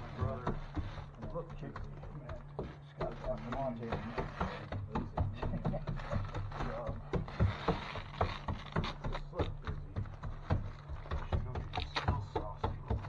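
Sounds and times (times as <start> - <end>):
low electrical hum: 0.0 - 13.0
sharp taps and knocks: 0.0 - 13.0.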